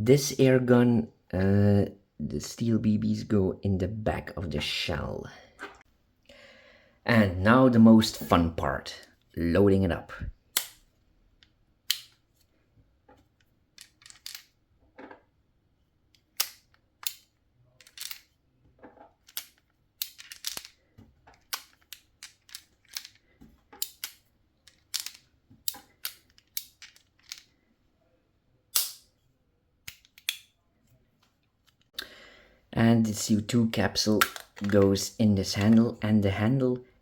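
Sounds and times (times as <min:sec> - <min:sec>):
metallic clicks loading revolver: 0:28.7 - 0:29.1.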